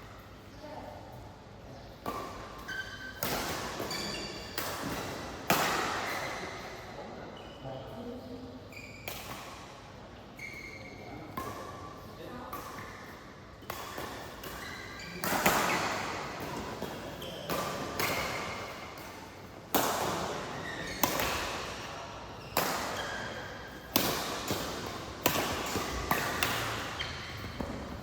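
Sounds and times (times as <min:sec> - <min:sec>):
badminton rackets hitting shuttlecock: 0:02.0 - 0:06.7, 0:12.5 - 0:28.0.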